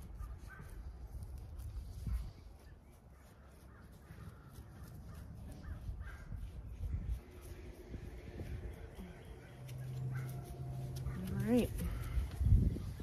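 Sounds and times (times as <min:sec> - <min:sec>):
bird cawing: 0:03.6 - 0:05.8
low rumble: 0:06.9 - 0:13.0.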